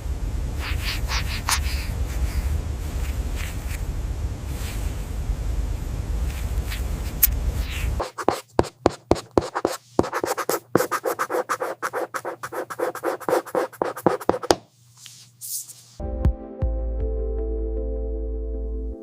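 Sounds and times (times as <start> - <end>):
tool scratching a surface: 7.7 - 14.6
music: 16.0 - 19.0.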